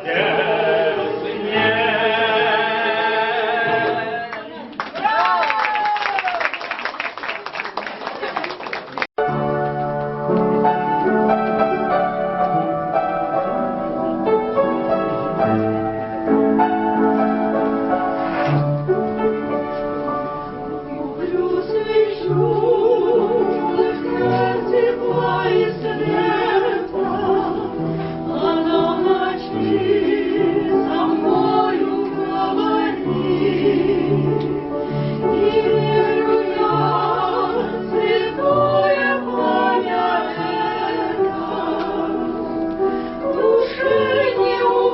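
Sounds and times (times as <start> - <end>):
person singing with vibrato: 0.0 - 4.6
keyboard accompaniment: 9.2 - 44.9.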